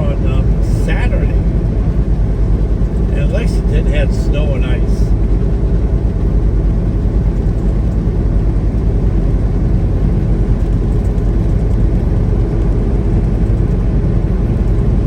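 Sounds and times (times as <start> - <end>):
road noise: 0.0 - 8.4
truck engine rumble: 0.0 - 15.0.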